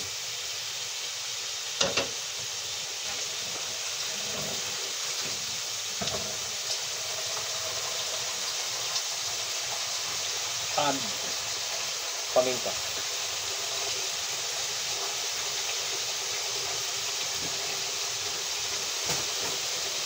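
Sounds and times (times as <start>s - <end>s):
liver sizzling in a pan: 0.0s - 20.0s.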